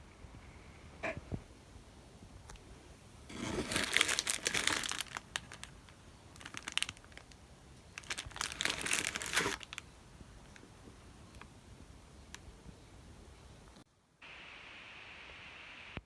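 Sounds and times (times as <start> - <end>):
plastic wrapping crinkling: 3.3 - 10.7.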